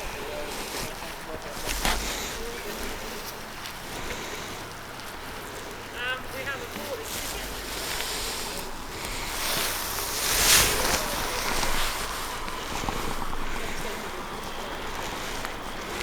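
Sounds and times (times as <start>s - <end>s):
wind gusting over microphone: 7.3s - 16.0s.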